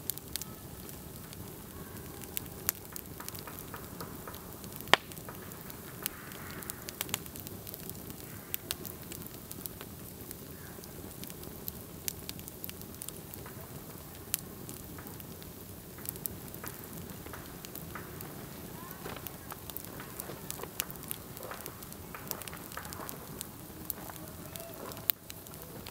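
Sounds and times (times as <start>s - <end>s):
campfire crackling: 0.0s - 25.9s.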